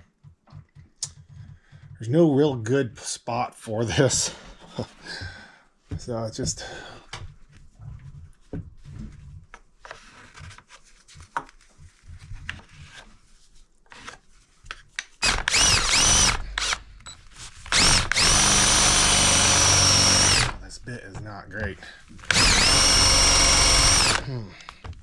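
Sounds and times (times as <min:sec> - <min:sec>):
power drill boring into wood: 0:15.2 - 0:16.9, 0:17.6 - 0:20.8, 0:22.2 - 0:24.4.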